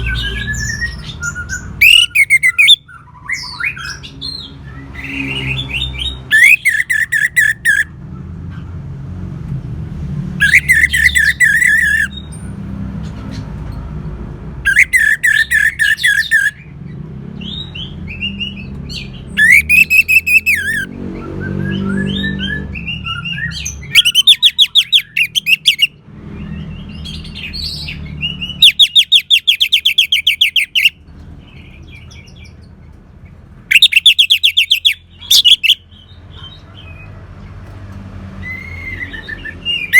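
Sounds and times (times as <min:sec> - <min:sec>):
soft bird chirps: 0:00.0 - 0:07.9, 0:10.4 - 0:13.8, 0:14.6 - 0:16.7, 0:17.4 - 0:20.9, 0:21.5 - 0:37.2
thrush singing: 0:00.0 - 0:07.9, 0:10.3 - 0:12.3, 0:17.5 - 0:26.0, 0:26.9 - 0:31.0, 0:33.7 - 0:35.9.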